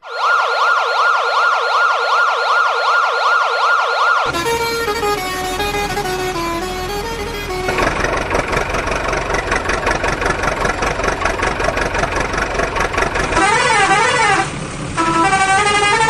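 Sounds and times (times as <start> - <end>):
warbling siren tone: 0.0 - 8.1
horn playing a stepped tune: 4.3 - 8.0, 13.4 - 16.0.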